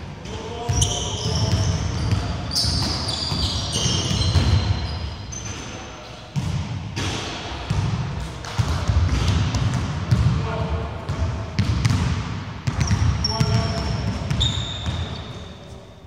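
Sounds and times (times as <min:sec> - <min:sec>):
sneaker squeaks: 0:00.3 - 0:06.5, 0:12.7 - 0:16.0
basketball bouncing on wooden court: 0:00.7 - 0:05.6, 0:06.4 - 0:15.2.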